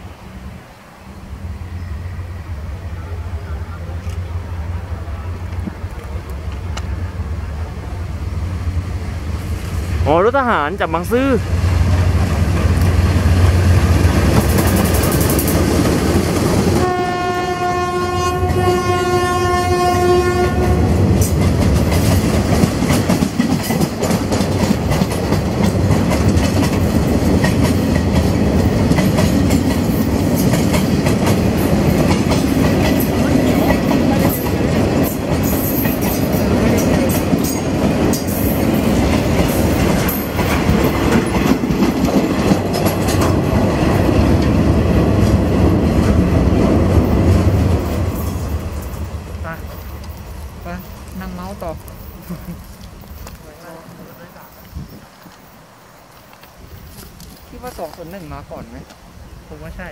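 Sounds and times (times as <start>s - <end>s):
train wheels rumbling and clattering: 0.0s - 59.9s
locomotive horn: 16.7s - 21.1s.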